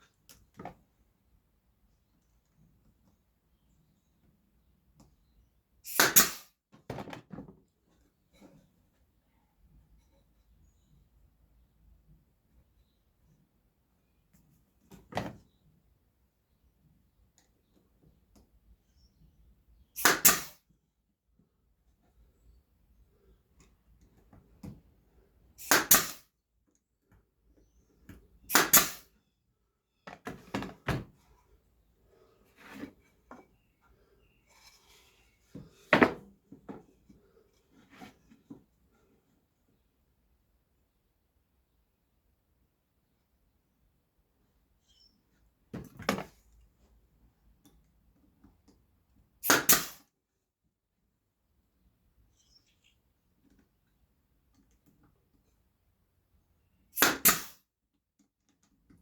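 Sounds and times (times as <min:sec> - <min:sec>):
nailer shots into wood: 0:05.9 - 0:06.5, 0:20.0 - 0:20.6, 0:25.6 - 0:26.3, 0:28.5 - 0:29.1, 0:49.4 - 0:50.0, 0:57.0 - 0:57.6.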